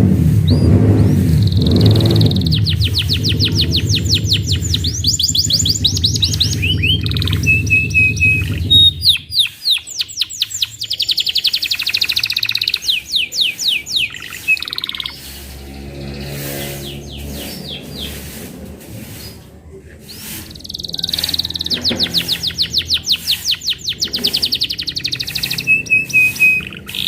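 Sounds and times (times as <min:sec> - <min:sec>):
low steady drone: 0:00.0 - 0:09.4, 0:14.1 - 0:20.6
canary singing trills: 0:00.4 - 0:18.4, 0:20.0 - 0:27.0.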